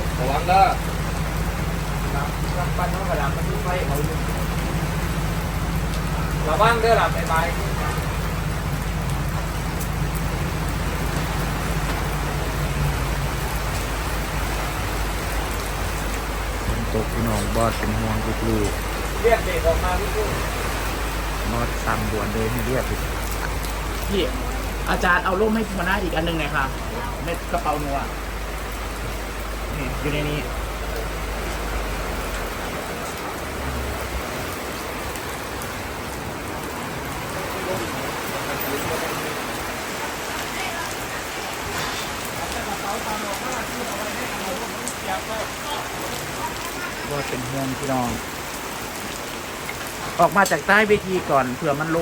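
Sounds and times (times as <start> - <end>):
low hum: 0.0 - 37.2
heavy rain falling: 0.0 - 52.0.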